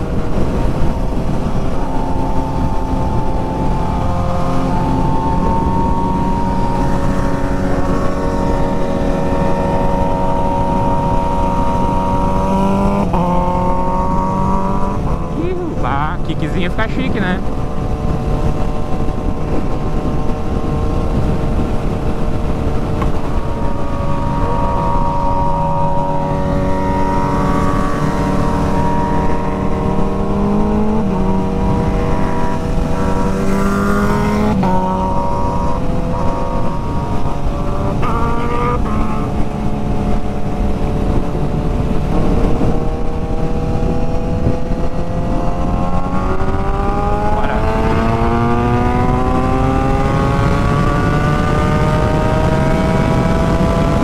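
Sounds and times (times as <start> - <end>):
motorcycle engine accelerating: 0.0 - 54.0
wind and road noise: 0.0 - 54.0.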